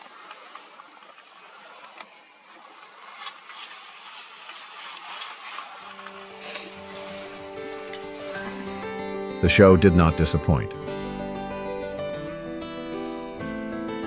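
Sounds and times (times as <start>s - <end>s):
faint rustling: 0.0s - 9.0s
music with held notes: 5.7s - 14.0s.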